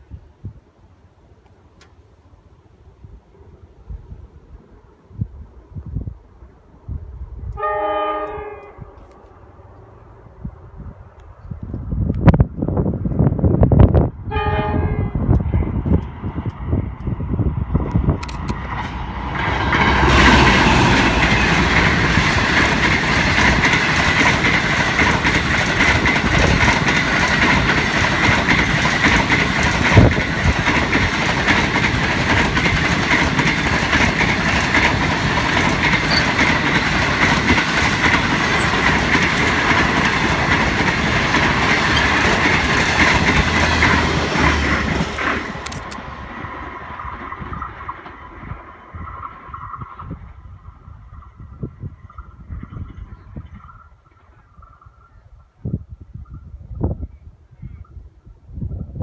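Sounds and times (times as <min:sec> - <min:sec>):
train wheels on rails: 0:15.2 - 0:55.1.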